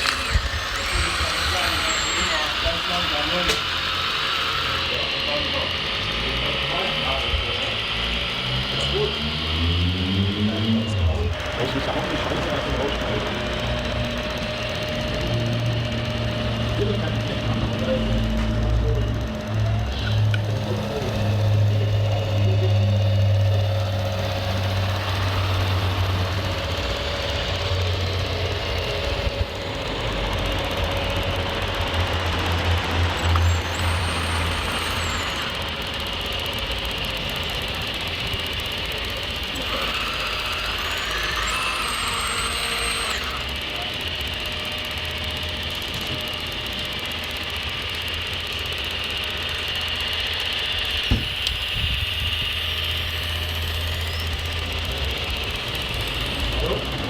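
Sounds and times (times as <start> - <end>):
low engine-like drone: 0.0 - 57.0
rc machinery whine and hum: 0.0 - 57.0
thin high tone: 33.1 - 37.4, 39.1 - 44.0.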